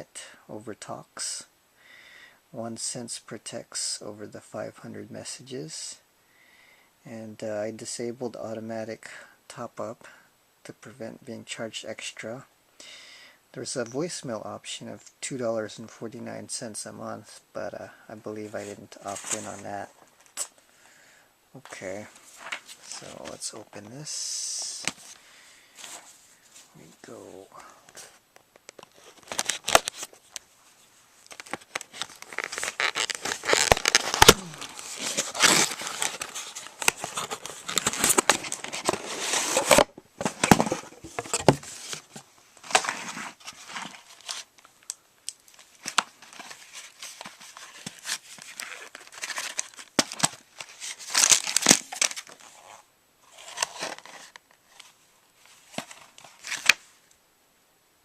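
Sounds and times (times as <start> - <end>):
packaging crinkling and tearing: 28.7 - 30.4, 31.2 - 54.9, 55.6 - 56.8.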